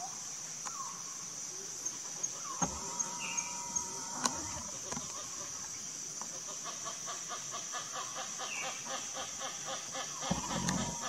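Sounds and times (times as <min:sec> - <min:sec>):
high insect drone: 0:00.0 - 0:11.0
bird clucking calls: 0:02.4 - 0:11.0.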